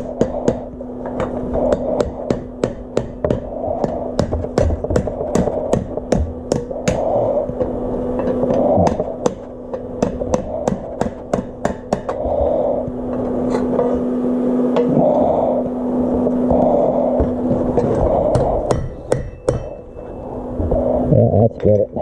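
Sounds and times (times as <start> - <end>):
hammer striking metal: 0.0 - 12.2, 17.2 - 20.2
steady hum: 0.0 - 22.0.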